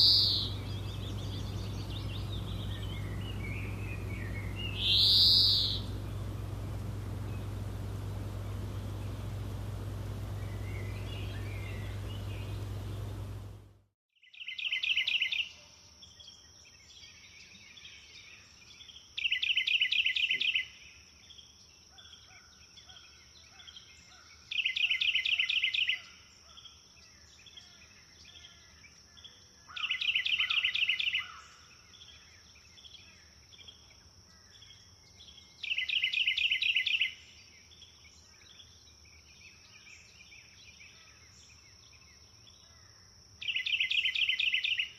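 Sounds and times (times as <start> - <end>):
songbird singing rapid notes: 0.0 - 13.7, 34.6 - 42.0, 43.4 - 44.9
rushing noise with low hum: 0.0 - 13.9.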